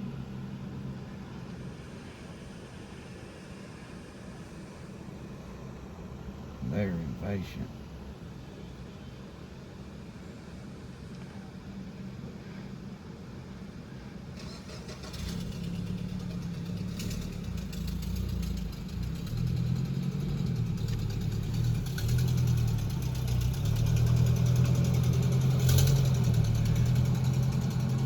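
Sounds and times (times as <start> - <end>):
vehicle engine running: 14.4 - 28.0.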